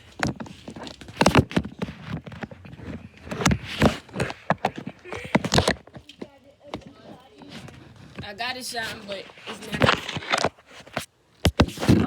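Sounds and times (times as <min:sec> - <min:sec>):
knocks and thumps: 0:00.0 - 0:08.3.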